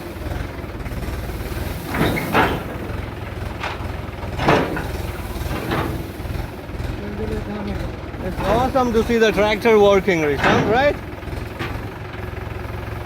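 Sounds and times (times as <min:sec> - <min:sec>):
tractor engine throbbing: 0:00.0 - 0:13.0.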